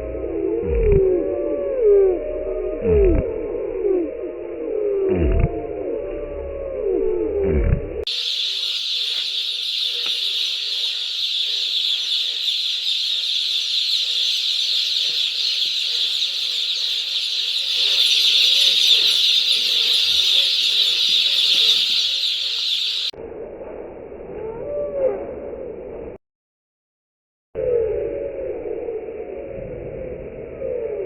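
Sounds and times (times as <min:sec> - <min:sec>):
chicks cheeping: 0:08.1 - 0:23.2.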